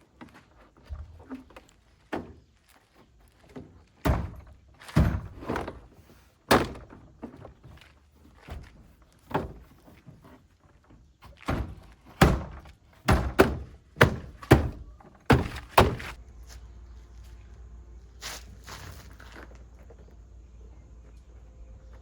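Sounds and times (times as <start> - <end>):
heavy thunks: 4.0 - 7.6, 11.4 - 16.2.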